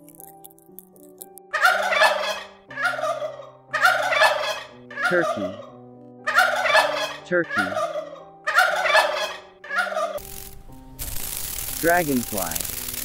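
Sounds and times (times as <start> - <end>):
turkey gobbling: 1.5 - 10.2.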